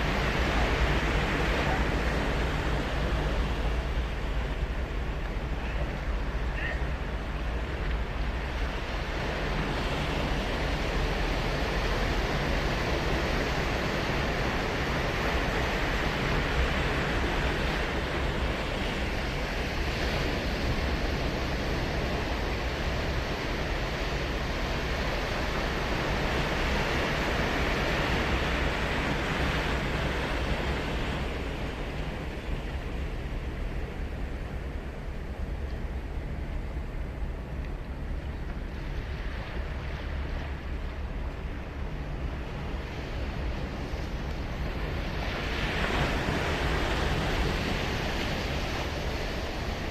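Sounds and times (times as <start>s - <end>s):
low rumble of surf: 0.0s - 49.9s
surf washing onto beach: 0.0s - 49.9s.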